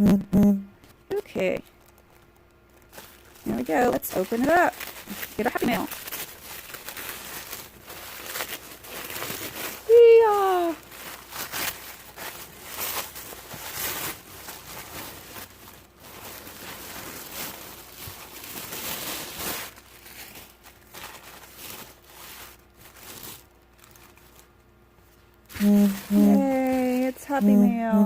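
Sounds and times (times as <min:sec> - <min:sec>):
wrapping paper crinkling and tearing: 0:01.4 - 0:27.5.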